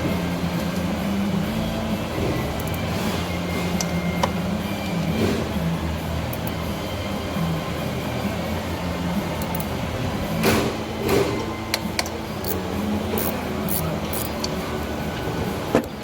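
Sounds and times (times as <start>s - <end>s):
steady background hum: 0.0s - 16.0s
tools clinking on metal: 9.4s - 9.8s, 11.4s - 14.6s.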